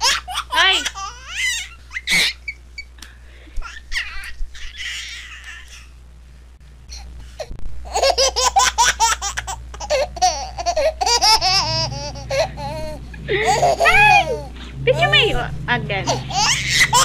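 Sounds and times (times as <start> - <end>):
person laughing high-pitched: 11.4 - 15.2.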